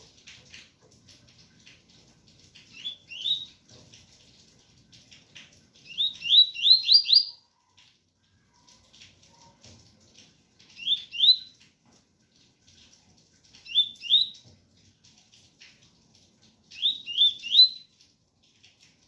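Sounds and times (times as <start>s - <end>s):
faint rain patter: 0.0s - 19.0s
bird whistling song: 2.7s - 3.6s, 5.8s - 7.4s, 10.8s - 11.5s, 13.7s - 14.4s, 16.7s - 17.9s.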